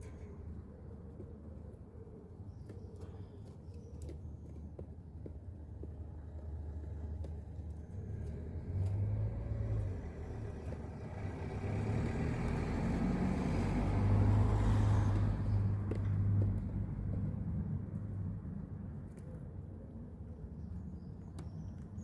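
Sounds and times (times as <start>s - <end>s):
car driving past: 8.0s - 17.2s.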